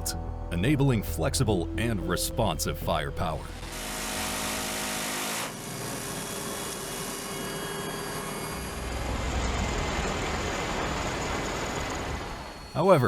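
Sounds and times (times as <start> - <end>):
aircraft engines droning: 8.5 - 13.0.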